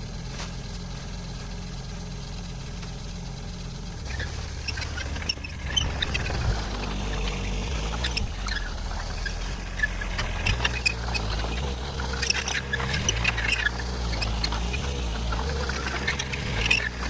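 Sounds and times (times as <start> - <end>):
mini excavator engine running: 0.0 - 17.0
short squeaks and clicks: 4.0 - 17.0.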